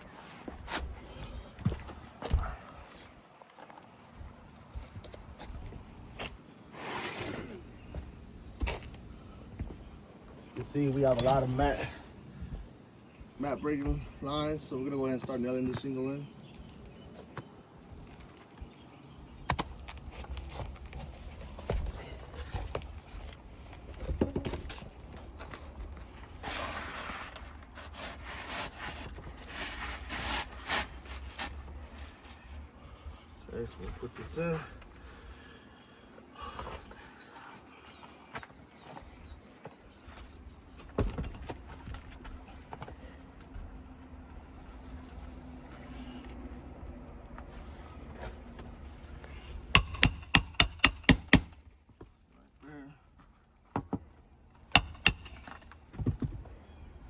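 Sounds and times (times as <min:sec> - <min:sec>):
shingle scraping against shingles: 0:26.2 - 0:32.6
sharp knocks: 0:54.8 - 0:56.1.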